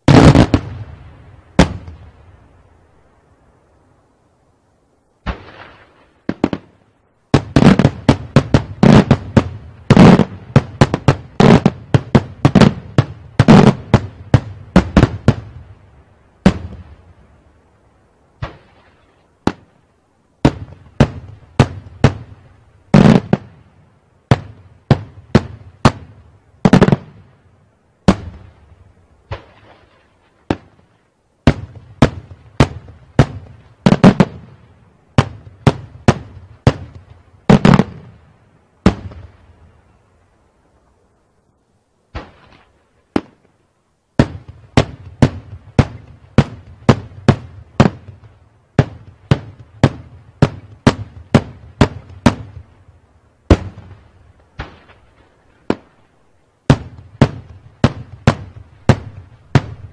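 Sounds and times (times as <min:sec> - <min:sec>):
firework shells exploding: 0:00.0 - 0:02.0, 0:05.2 - 0:15.6, 0:20.4 - 0:23.6, 0:24.3 - 0:27.2, 0:29.3 - 0:38.2, 0:44.2 - 0:52.7, 0:53.5 - 0:56.0, 0:56.6 - 0:59.9.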